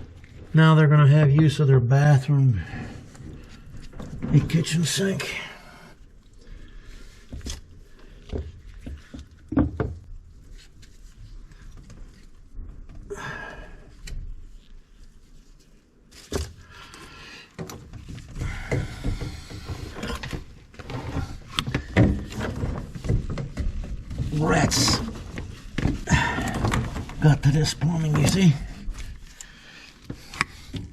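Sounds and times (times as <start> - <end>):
knocks of objects being handled: 5.9 - 13.0, 17.5 - 30.9.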